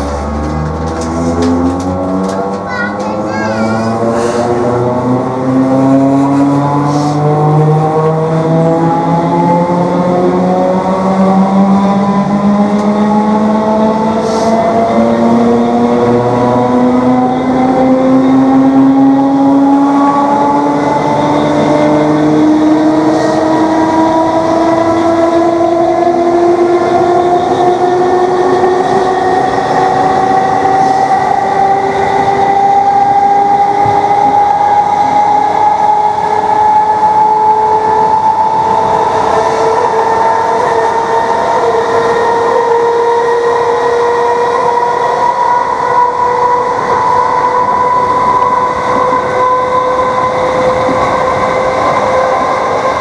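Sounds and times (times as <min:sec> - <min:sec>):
train running rumble: 0:00.0 - 0:37.4.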